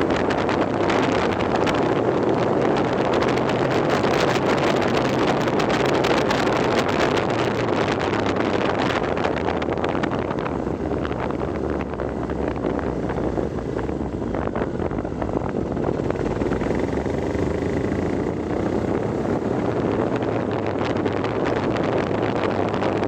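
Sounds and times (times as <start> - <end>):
vehicle engine running: 0.0 - 23.0
wind buffeting microphone: 0.0 - 23.0.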